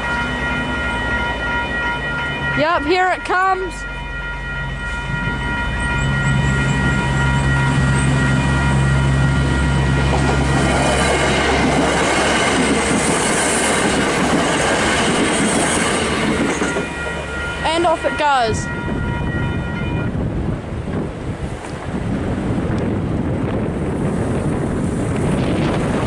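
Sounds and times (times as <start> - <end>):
level crossing electronic bell: 0.0 - 10.8, 16.9 - 20.1
train wheel and rail noise: 0.0 - 26.0.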